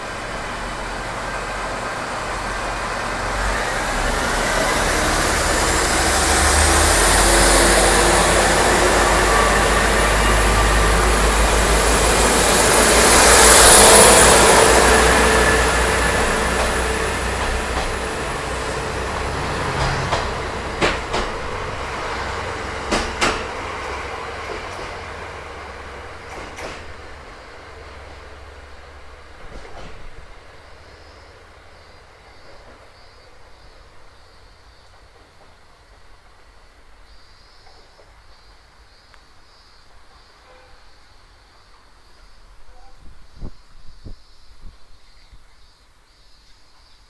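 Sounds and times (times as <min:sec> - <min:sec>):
high steady squeal: 0:00.0 - 0:26.4
passenger train passing: 0:00.0 - 0:37.1.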